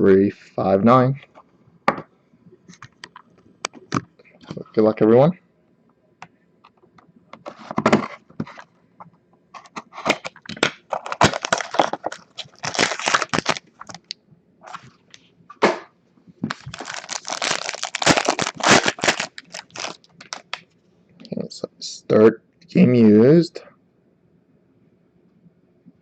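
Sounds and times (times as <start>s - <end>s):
plastic wrap tearing and crinkling: 9.6s - 14.1s, 16.5s - 20.6s.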